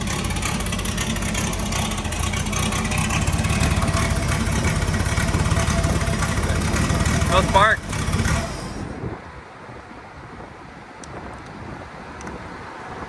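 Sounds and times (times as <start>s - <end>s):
car engine running: 0.0s - 9.0s.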